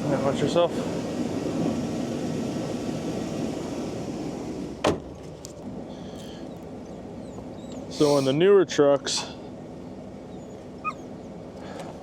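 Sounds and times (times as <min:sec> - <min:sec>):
truck door shutting: 0:04.8 - 0:05.4.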